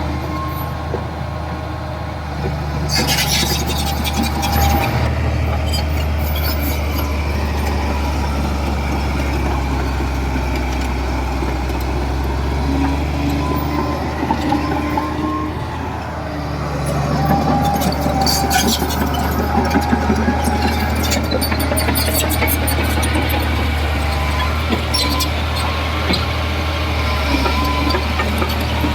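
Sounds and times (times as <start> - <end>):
bulldozer diesel engine running: 0.0 - 28.9.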